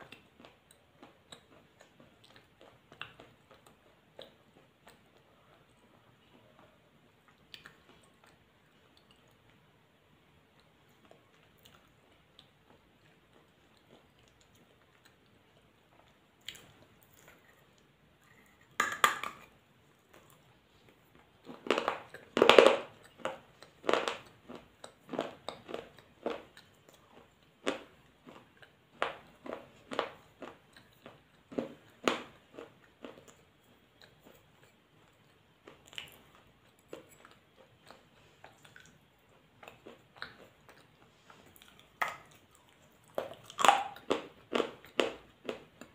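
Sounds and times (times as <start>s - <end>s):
person chewing crunchy food: 0.0s - 9.6s, 10.6s - 45.9s.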